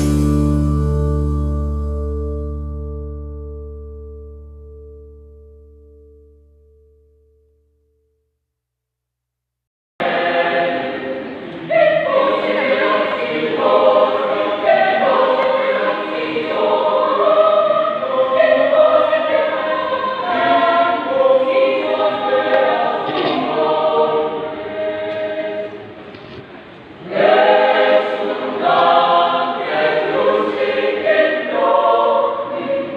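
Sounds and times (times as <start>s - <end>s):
choir singing in parts: 10.0s - 26.2s, 26.9s - 32.9s.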